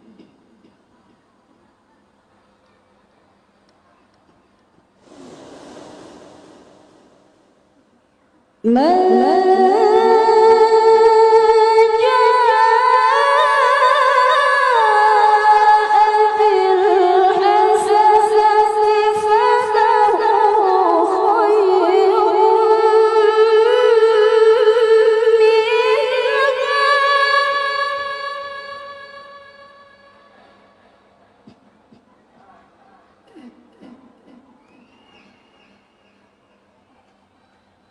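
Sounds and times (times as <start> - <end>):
woman reciting melodically: 8.6 - 30.6.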